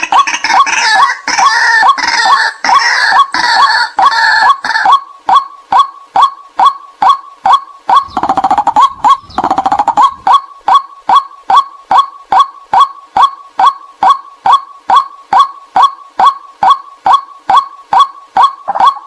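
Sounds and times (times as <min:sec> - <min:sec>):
waterhen kwak calls: 0:00.0 - 0:19.0
waterhen rattling chatter: 0:07.9 - 0:13.3.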